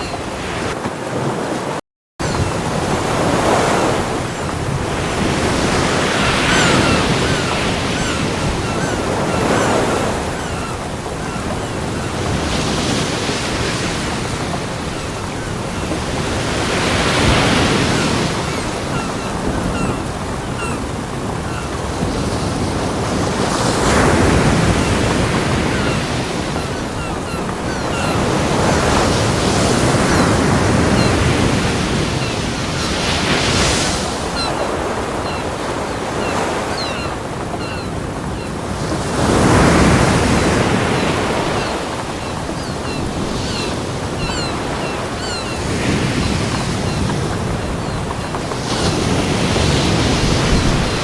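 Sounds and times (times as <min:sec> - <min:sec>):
ocean waves breaking: 0:00.0 - 0:51.0.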